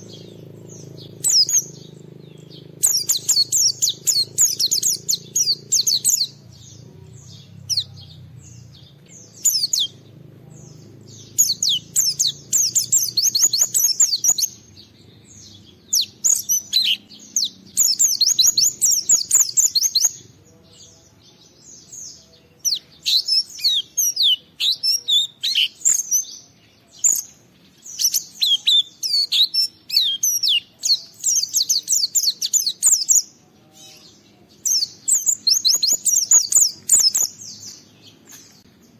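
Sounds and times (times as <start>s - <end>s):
bird singing twittering notes: 0.0s - 38.9s.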